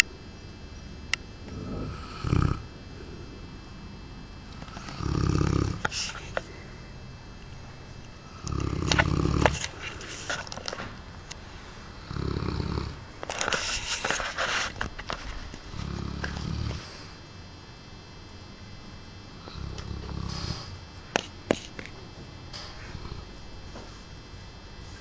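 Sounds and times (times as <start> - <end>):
dog snoring: 1.4 - 3.5, 4.5 - 6.7, 8.2 - 10.8, 12.0 - 17.2, 19.3 - 21.7, 22.8 - 23.4
hissing breaths: 4.6 - 7.0, 11.4 - 14.9, 19.4 - 20.9.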